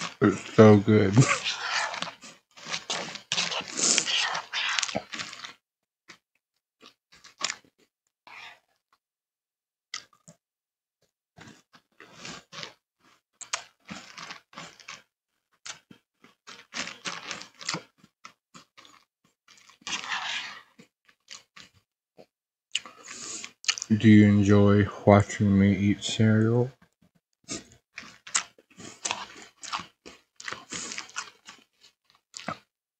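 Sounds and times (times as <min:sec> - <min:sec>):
crunchy cereal chewing: 0:00.0 - 0:06.2, 0:06.8 - 0:08.6, 0:11.4 - 0:21.8, 0:22.8 - 0:23.9, 0:27.5 - 0:32.7.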